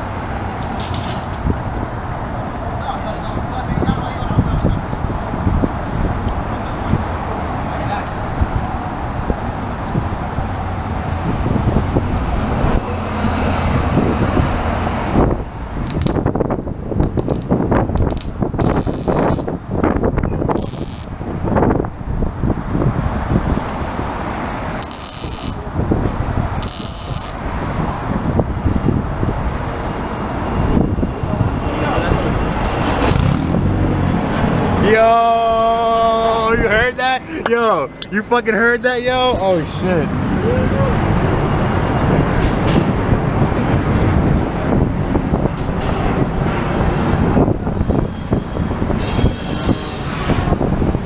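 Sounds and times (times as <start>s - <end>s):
steady low rumble: 8.1s - 49.0s
short hissing bursts: 18.6s - 19.5s, 26.6s - 27.4s.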